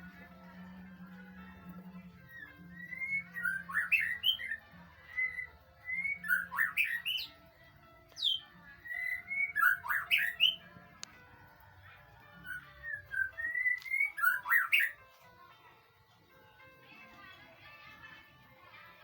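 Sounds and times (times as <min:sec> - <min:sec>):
bird singing whistled phrases: 0:02.3 - 0:07.4, 0:08.1 - 0:10.7, 0:12.4 - 0:15.0.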